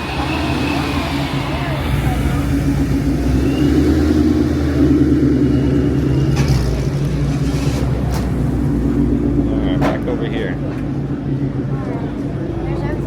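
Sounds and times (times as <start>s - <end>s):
car engine exhaust rumble: 0.0s - 13.0s
faint high-pitched whistle: 3.1s - 4.3s, 5.1s - 6.4s.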